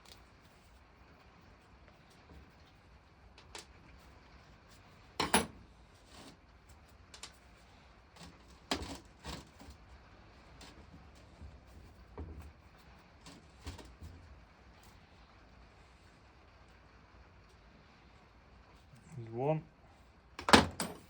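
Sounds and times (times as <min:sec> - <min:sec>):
metal tools clinking and knocking: 0:20.4 - 0:21.0.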